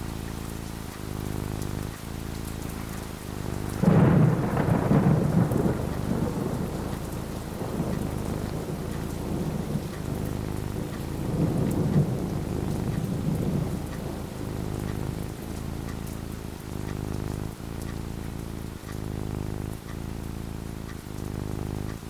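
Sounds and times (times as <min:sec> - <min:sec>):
rain falling: 0:00.0 - 0:22.0
thunder rumbling: 0:03.4 - 0:17.6.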